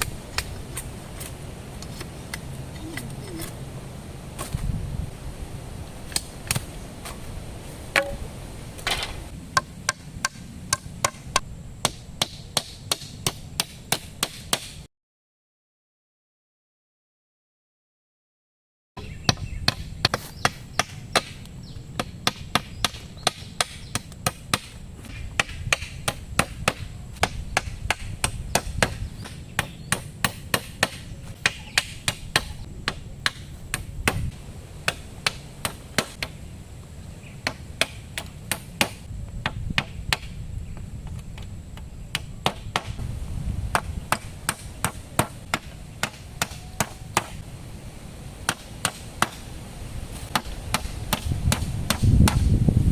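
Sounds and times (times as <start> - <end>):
wood being chopped: 6.1 - 7.2, 7.9 - 8.2, 8.8 - 14.8, 19.3 - 21.4, 22.0 - 36.4, 37.4 - 40.3, 41.8 - 43.0, 43.7 - 47.4, 48.5 - 49.4, 50.3 - 52.5.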